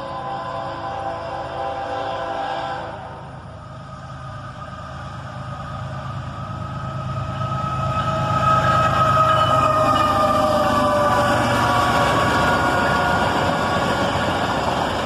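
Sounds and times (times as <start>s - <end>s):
locomotive horn: 0.0s - 3.3s, 7.0s - 13.8s
diesel locomotive engines running: 0.0s - 15.0s.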